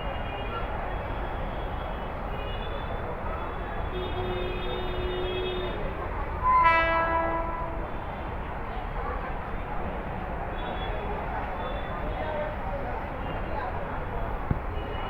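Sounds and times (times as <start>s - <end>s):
train horn: 4.0s - 8.1s.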